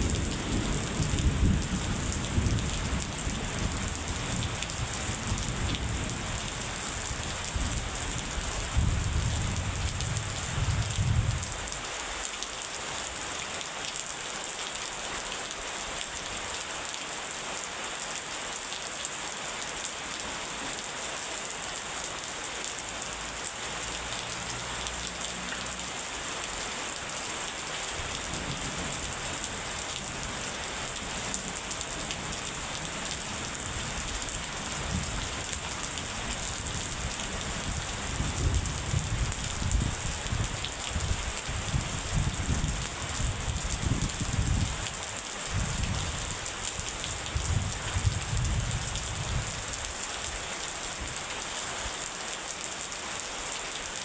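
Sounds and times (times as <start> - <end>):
low rumbling thunder: 0.0 - 6.4, 7.6 - 11.6
steady rain hiss: 0.0 - 54.0.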